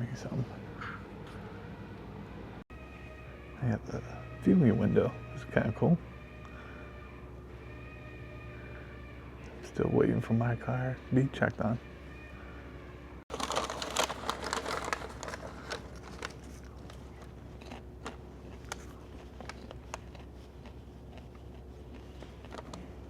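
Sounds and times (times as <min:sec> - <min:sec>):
popcorn bag crinkling: 0:13.3 - 0:23.0
popcorn being crunched: 0:13.3 - 0:23.0.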